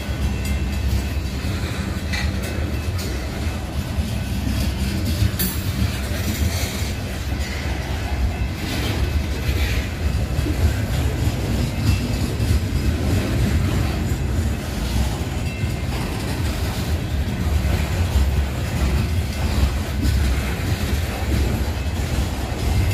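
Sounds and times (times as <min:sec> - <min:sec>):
clicks and clatter of train cars: 0:00.0 - 0:22.9
steel wheels rumbling on rail: 0:00.0 - 0:22.9.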